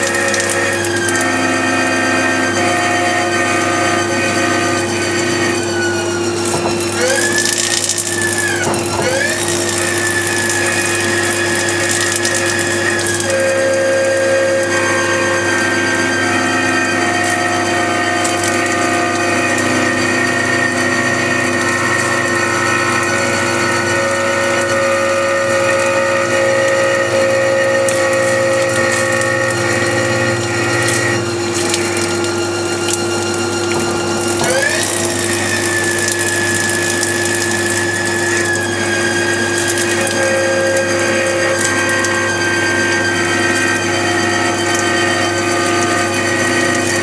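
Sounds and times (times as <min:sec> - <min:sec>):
cutting noise: 0:00.0 - 0:47.0
lathe machine whine: 0:00.0 - 0:47.0.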